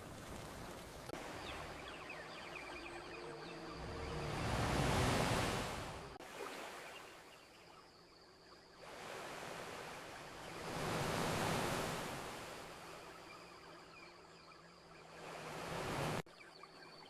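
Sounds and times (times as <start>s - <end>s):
ocean waves washing onto shore: 0.0s - 7.3s, 8.8s - 13.4s, 14.9s - 16.2s.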